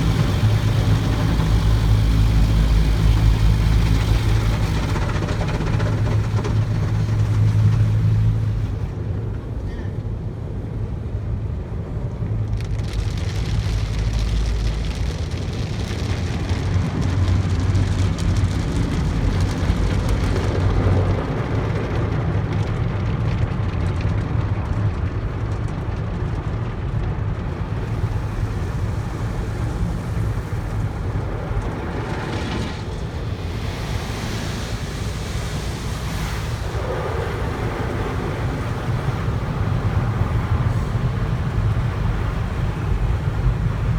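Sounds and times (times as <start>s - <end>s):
water spray drumming on car: 0.0s - 9.1s, 12.5s - 26.4s, 27.4s - 43.9s
low machinery rumble: 0.0s - 43.9s
hissing spray sweeps: 27.5s - 43.9s.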